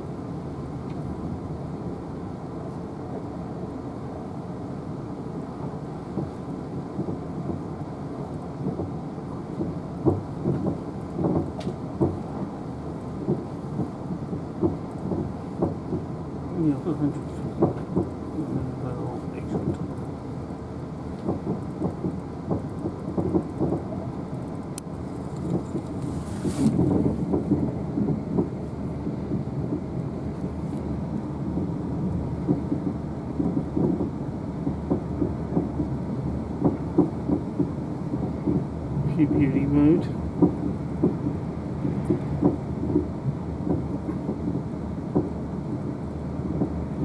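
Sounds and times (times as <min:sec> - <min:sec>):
train wheels rumbling on rails: 0:00.0 - 0:47.0
irregular knocks: 0:09.6 - 0:12.3, 0:14.6 - 0:16.1, 0:21.2 - 0:24.0, 0:26.8 - 0:28.6, 0:32.4 - 0:36.0, 0:40.4 - 0:44.6.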